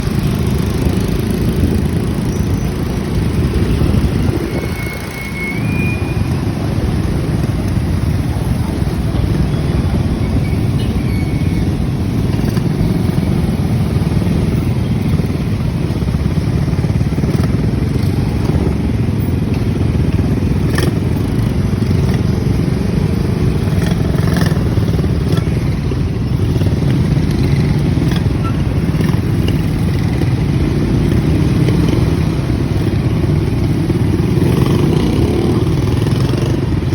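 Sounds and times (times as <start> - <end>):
wind noise: 0.0 - 17.5
motorcycle engine running: 0.0 - 36.9
road noise: 0.0 - 36.9.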